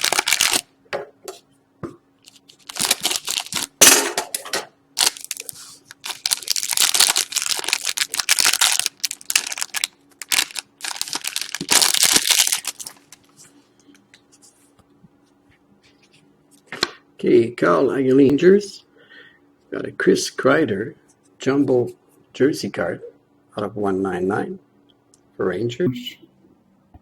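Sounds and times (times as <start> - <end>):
plastic wrapping tearing: 0.0 - 0.7, 2.2 - 3.8, 5.0 - 13.4.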